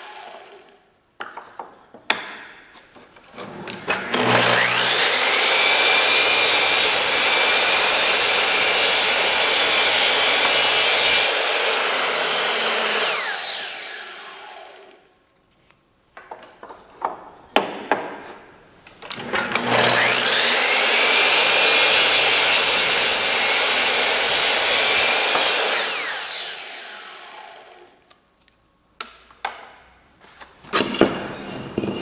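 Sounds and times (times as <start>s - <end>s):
power tool cutting wood: 0.0s - 0.9s, 3.6s - 15.0s, 19.1s - 28.1s
knocks of wood being handled: 16.2s - 18.5s.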